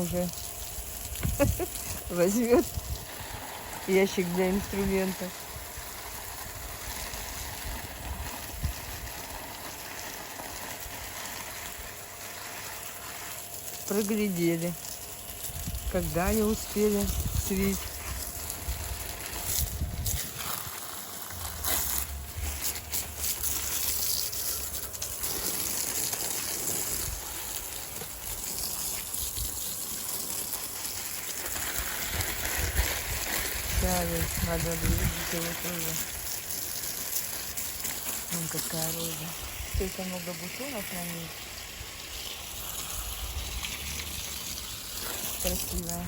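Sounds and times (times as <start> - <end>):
water spraying from hose: 0.0 - 46.0
wind rumble on microphone: 1.1 - 3.4, 6.6 - 9.1, 15.5 - 20.7, 32.1 - 35.4.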